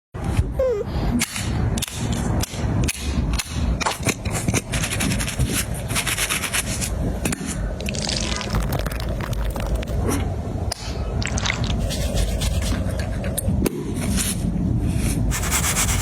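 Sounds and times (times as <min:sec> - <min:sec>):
close rubbing and scraping: 0:04.0 - 0:07.0, 0:11.8 - 0:13.4.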